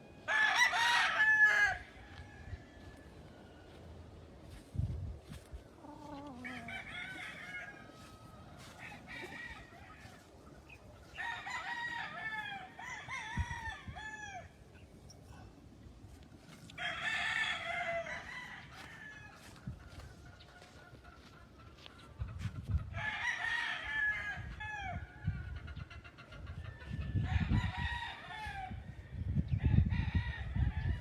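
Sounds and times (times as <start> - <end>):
roosters crowing: 0.1 - 4.2, 5.3 - 15.1, 16.4 - 21.3, 22.8 - 31.0
chickens clucking: 5.2 - 11.2, 19.4 - 22.9, 25.3 - 27.2.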